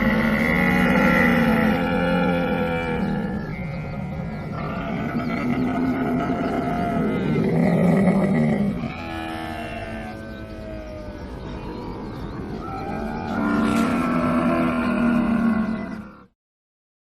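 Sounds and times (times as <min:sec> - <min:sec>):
camel calling: 0:00.0 - 0:16.3.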